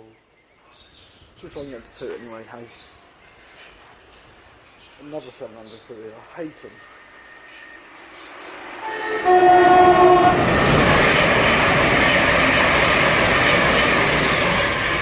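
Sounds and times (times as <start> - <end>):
train wheels rushing on rails: 3.5 - 15.0
two-tone train horn: 8.8 - 12.3.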